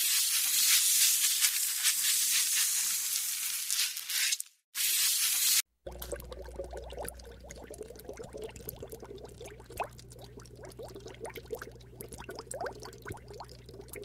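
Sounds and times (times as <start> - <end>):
water bubbling underwater: 5.8 - 14.0
faint steady hum: 5.9 - 14.0.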